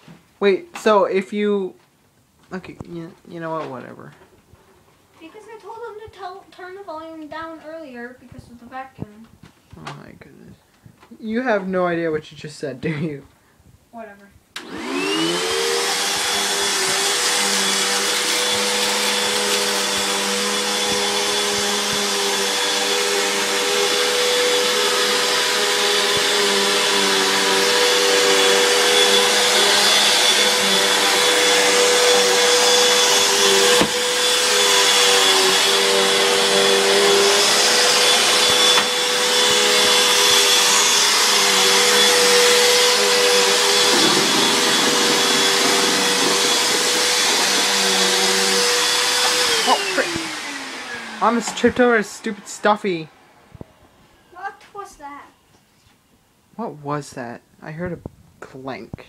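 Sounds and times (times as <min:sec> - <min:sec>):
vacuum cleaner running: 0:14.6 - 0:54.5.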